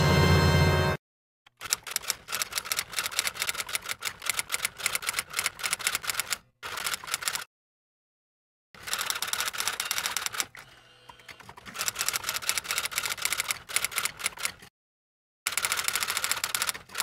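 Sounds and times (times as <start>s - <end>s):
rapid keyboard typing: 1.6s - 7.4s, 8.8s - 10.5s, 11.4s - 14.6s, 15.5s - 17.0s.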